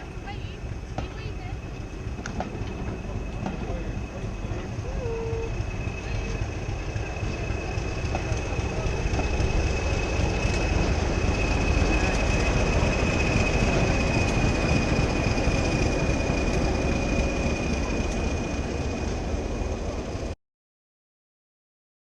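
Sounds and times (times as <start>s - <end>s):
train rumbling on track: 0.0s - 20.4s.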